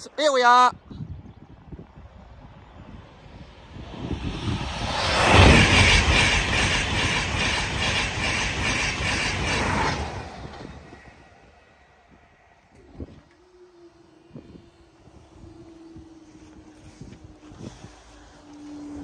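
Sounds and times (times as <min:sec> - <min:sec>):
train passing at speed: 0:01.6 - 0:19.0
train wheels beating: 0:04.2 - 0:11.4.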